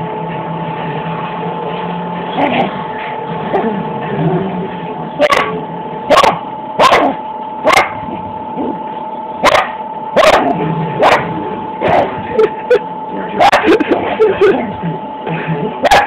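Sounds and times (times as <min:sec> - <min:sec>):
dog barking: 0:05.2 - 0:08.0, 0:09.4 - 0:12.2, 0:13.4 - 0:13.9, 0:15.8 - 0:16.0.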